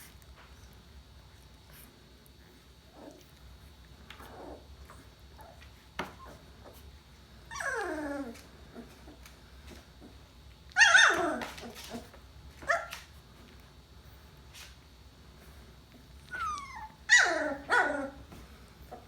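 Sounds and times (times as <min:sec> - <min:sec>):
puppies whining: 0:04.1 - 0:13.1, 0:16.2 - 0:19.0.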